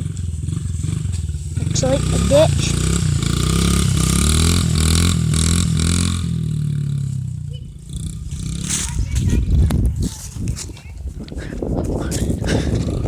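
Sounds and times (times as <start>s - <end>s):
dirt bike engine revving: 0.0s - 9.3s.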